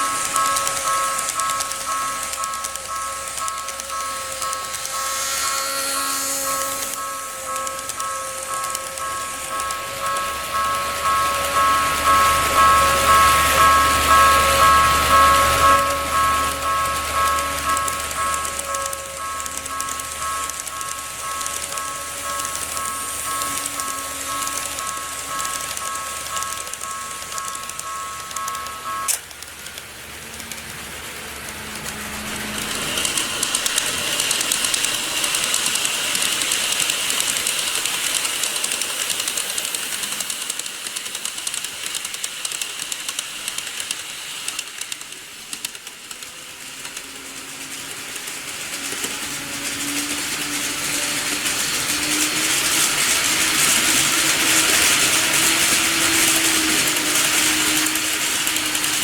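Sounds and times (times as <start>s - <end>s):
model train wheels on rail: 0.0s - 59.0s
sharp click: 15.7s - 29.8s.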